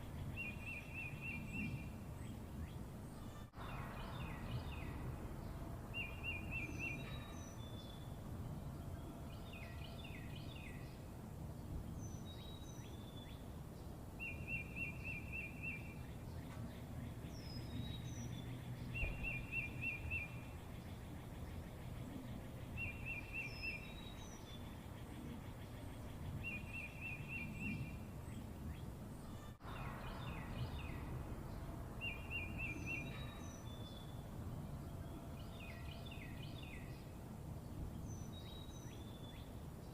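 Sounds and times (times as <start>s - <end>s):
songbirds trilling: 0.0s - 39.9s
low background rumble: 27.5s - 39.9s.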